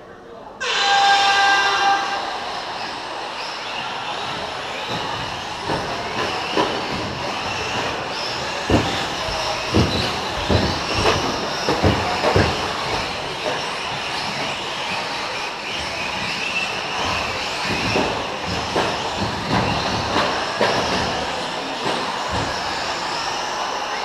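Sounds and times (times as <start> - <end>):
sharp knocks and thumps: 4.9 - 14.5, 15.7 - 22.7.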